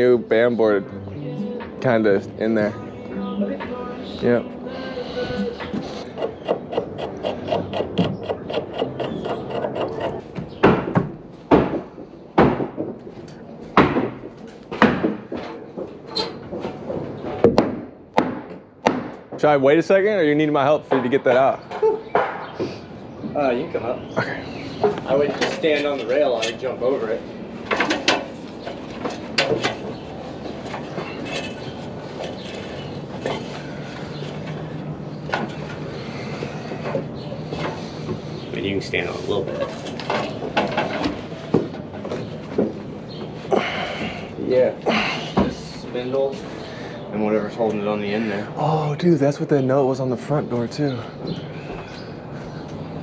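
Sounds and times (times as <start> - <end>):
sharp knocks on wood: 6.2 - 13.0, 13.8 - 15.9, 16.5 - 19.5
knocks on wooden deck: 10.4 - 13.1.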